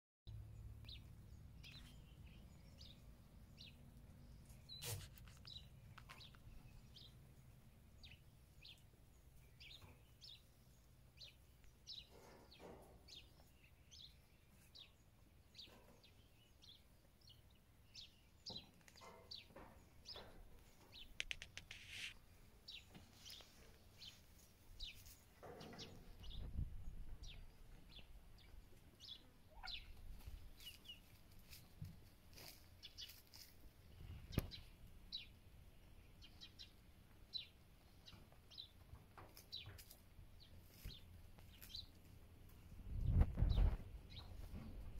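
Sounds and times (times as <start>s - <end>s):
small birds chirping: 0.3s - 44.9s
soft rustles: 20.1s - 26.6s, 30.0s - 34.6s.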